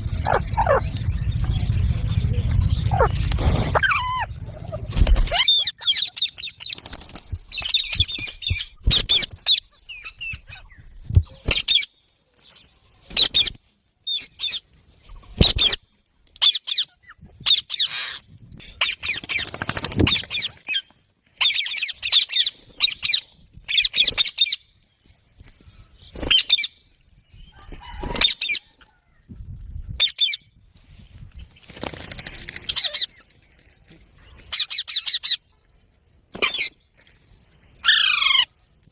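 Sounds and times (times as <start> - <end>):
parrots chirping and squawking: 0.0 - 6.8, 16.4 - 18.2, 32.7 - 33.2, 34.5 - 35.4, 37.8 - 38.5.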